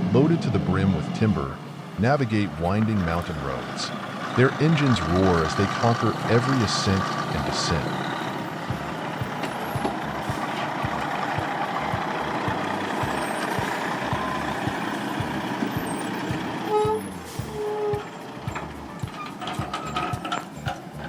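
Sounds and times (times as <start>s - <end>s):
truck engine running: 0.0s - 21.0s
short tones: 6.6s - 20.8s.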